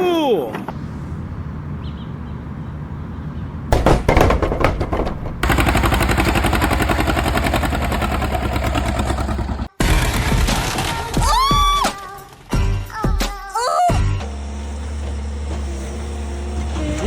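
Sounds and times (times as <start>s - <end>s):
loud bangs: 3.7s - 7.3s
fast clatter of repeated hits: 3.7s - 7.6s
tractor diesel engine chugging: 4.8s - 10.5s.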